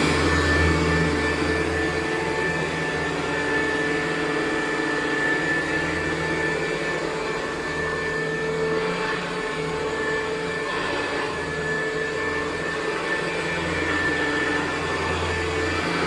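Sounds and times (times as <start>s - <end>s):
vacuum cleaner on carpet: 0.0s - 16.0s.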